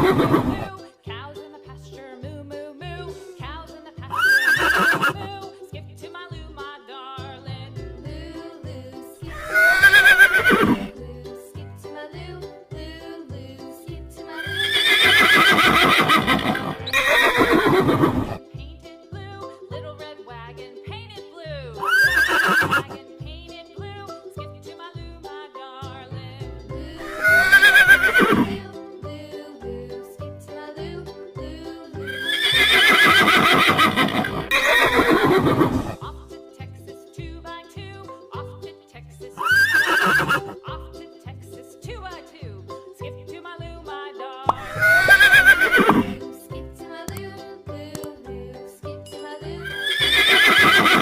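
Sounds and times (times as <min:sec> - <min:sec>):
horse whinnying: 0:00.0 - 0:00.7, 0:04.2 - 0:05.3, 0:09.3 - 0:10.9, 0:14.4 - 0:18.4, 0:21.8 - 0:23.0, 0:27.0 - 0:28.6, 0:32.0 - 0:36.0, 0:39.4 - 0:40.6, 0:44.5 - 0:46.2, 0:49.6 - 0:51.0.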